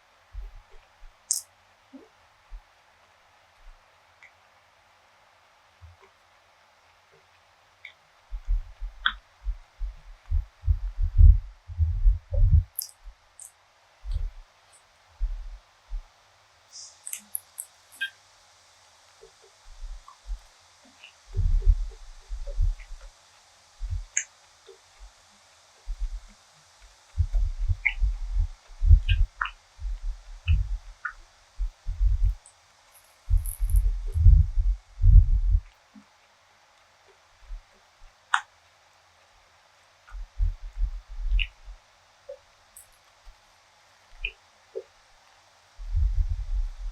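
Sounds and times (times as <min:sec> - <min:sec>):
mouth clicks: 0:12.3 - 0:13.5, 0:16.8 - 0:18.2, 0:41.3 - 0:41.6.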